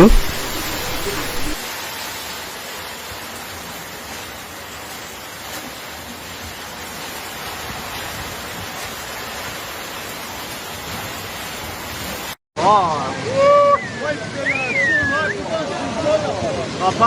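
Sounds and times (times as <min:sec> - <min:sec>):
heavy rain pouring: 0:00.0 - 0:12.3.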